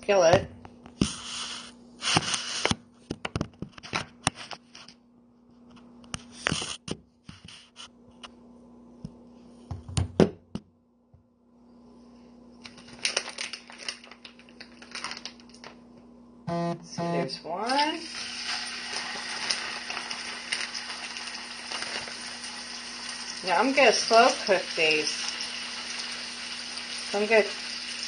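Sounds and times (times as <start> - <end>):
faint steady hum: 0.0 - 28.0
plastic package rustling: 12.6 - 15.8, 18.5 - 22.5
chicken frying in oil: 17.9 - 28.0.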